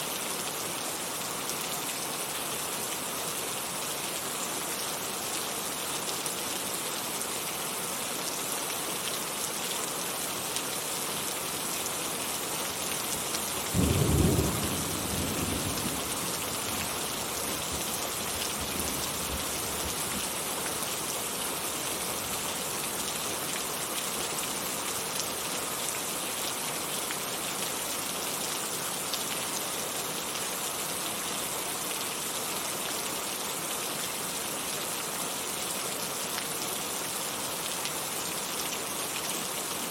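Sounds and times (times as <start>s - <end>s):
heavy rain falling: 0.1s - 39.9s
thunder rumbling: 13.8s - 16.2s.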